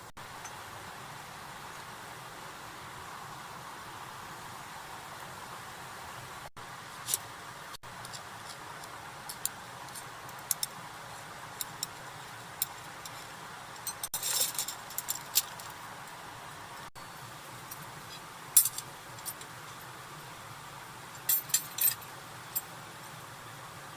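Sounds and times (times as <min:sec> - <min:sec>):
steady hiss: 0:00.0 - 0:23.9
small hard items clinking: 0:12.6 - 0:15.8.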